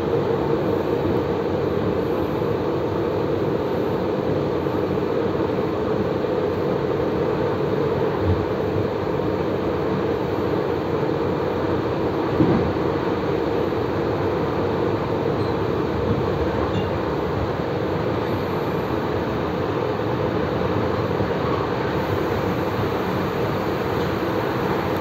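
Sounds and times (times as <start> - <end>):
train wheels rumbling on rails: 0.0 - 25.0
brief knock: 12.4 - 12.7.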